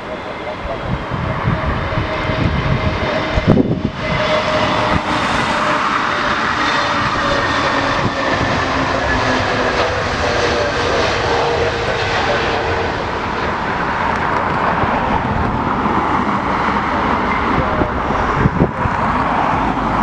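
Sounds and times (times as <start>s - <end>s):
jet engines roaring: 0.0s - 20.0s
wind rumble on microphone: 0.0s - 20.0s.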